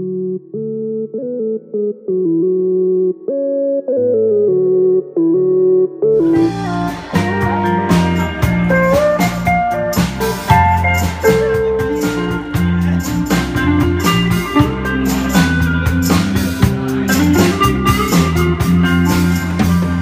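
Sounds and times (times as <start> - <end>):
bass guitar: 0.0 - 20.0
electric guitar: 0.0 - 20.0
drum kit beat: 6.2 - 20.0.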